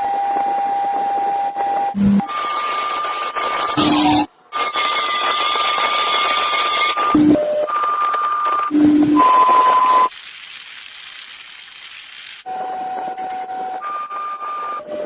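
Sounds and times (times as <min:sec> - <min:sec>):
electronic tones: 0:01.6 - 0:12.5
hiss with high whistle tone: 0:09.2 - 0:12.5.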